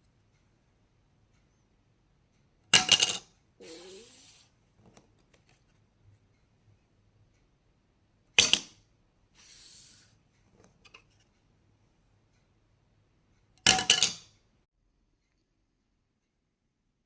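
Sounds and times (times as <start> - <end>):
soft sliding sound: 9.4 - 10.2.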